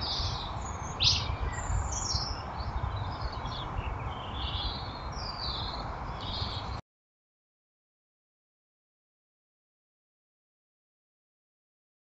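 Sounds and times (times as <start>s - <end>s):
small birds chirping: 0.0s - 6.8s.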